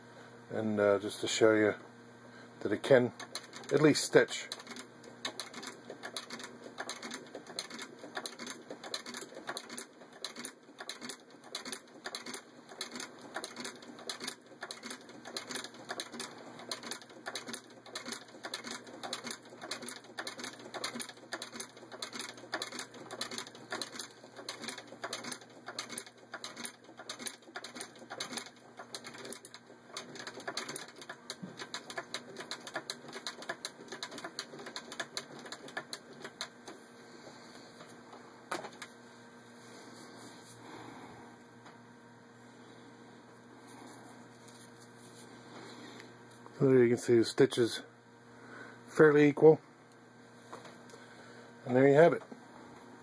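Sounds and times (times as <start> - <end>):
treadle sewing machine clattering: 3.2 - 36.5.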